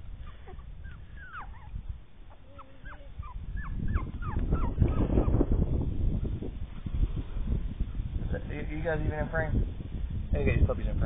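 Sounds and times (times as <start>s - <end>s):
puppies whimpering and squeaking: 0.1s - 5.5s.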